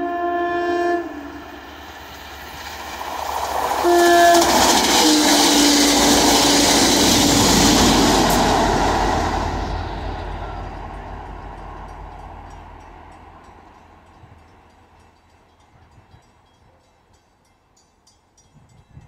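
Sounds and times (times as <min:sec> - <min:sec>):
train horn blasts: 0:00.0 - 0:02.0, 0:03.7 - 0:08.5
diesel locomotive rumble: 0:00.0 - 0:16.5
rush of wheels on rail: 0:00.0 - 0:17.5.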